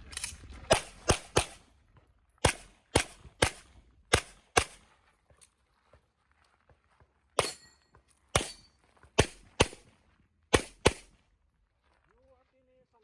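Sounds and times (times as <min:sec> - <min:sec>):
handgun shots: 0:00.7 - 0:01.6, 0:02.4 - 0:04.8, 0:07.4 - 0:07.7, 0:08.3 - 0:09.8, 0:10.5 - 0:11.1.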